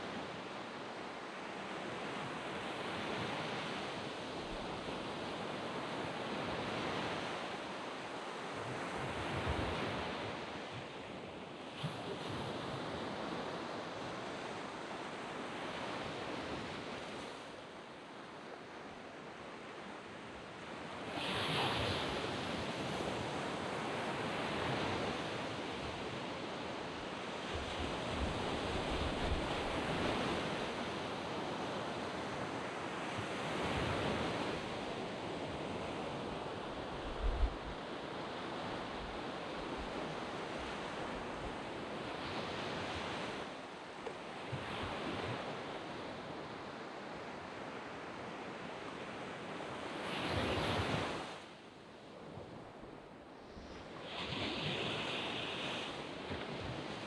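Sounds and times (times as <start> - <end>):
waves washing up a beach: 0.0 - 57.0.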